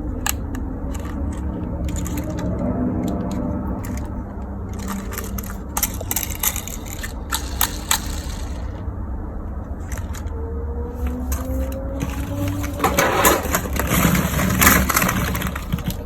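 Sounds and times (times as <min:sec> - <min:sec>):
handling clicks and rattles: 0:00.0 - 0:08.9, 0:09.7 - 0:10.4, 0:11.0 - 0:16.0.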